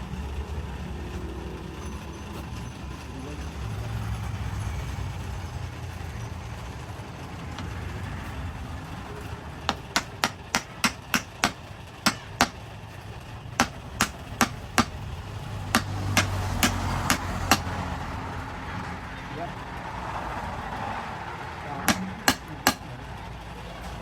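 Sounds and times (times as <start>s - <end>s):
sharp hammer blows: 9.7s - 12.6s, 13.6s - 15.0s, 15.7s - 17.8s, 21.9s - 22.9s.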